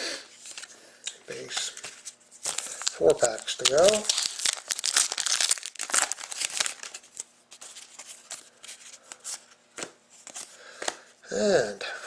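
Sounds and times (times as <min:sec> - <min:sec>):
cards rustling and clicking: 0:00.4 - 0:11.0
wrapper crinkling and tearing: 0:01.5 - 0:09.3.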